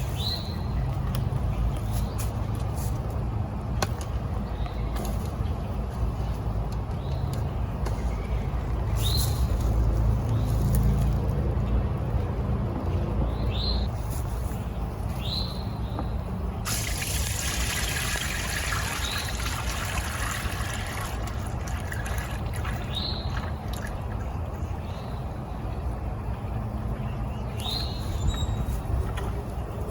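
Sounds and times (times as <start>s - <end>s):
wind rumble on microphone: 0.0s - 29.9s
liquid pouring: 16.7s - 24.3s.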